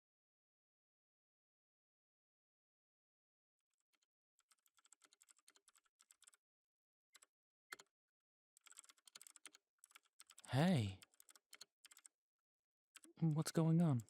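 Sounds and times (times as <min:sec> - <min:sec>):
typing on computer keyboard: 0:04.4 - 0:06.4, 0:08.6 - 0:12.1, 0:13.0 - 0:14.0.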